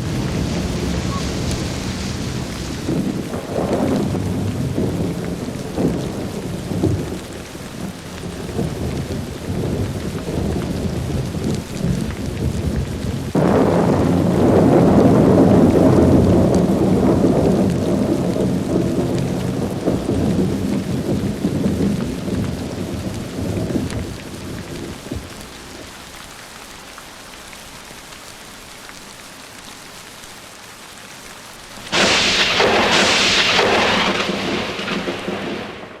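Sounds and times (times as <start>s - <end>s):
close thunderclap: 0.0s - 25.4s, 31.9s - 36.0s
low thunder rumble: 0.0s - 25.8s, 31.9s - 36.0s
rain hiss: 0.0s - 36.0s.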